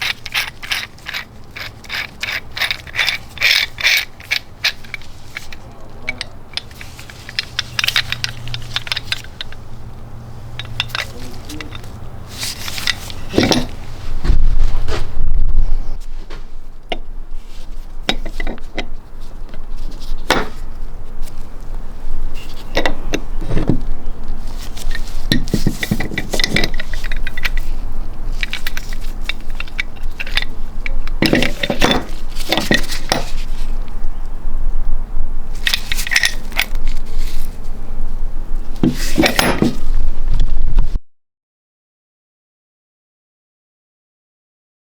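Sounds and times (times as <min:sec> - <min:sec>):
metal wrench clinking and rattling: 0:00.0 - 0:09.8, 0:10.5 - 0:13.8, 0:16.9 - 0:21.5, 0:22.2 - 0:33.8, 0:35.5 - 0:37.6, 0:38.8 - 0:40.0.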